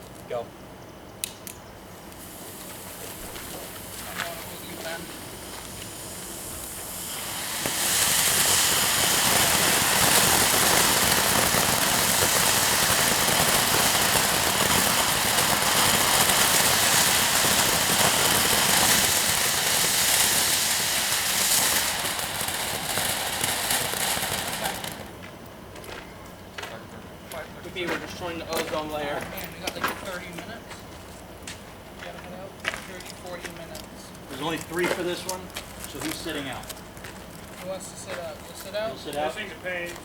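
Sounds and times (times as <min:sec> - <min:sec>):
fountain fireworks hissing: 0:01.9 - 0:25.4, 0:27.0 - 0:40.0.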